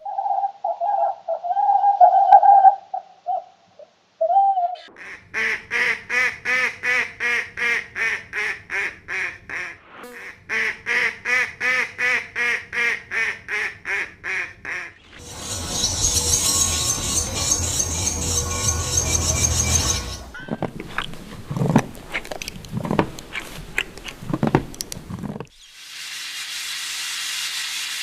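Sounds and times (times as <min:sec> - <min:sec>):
duck quacking: 0:04.9 - 0:15.0.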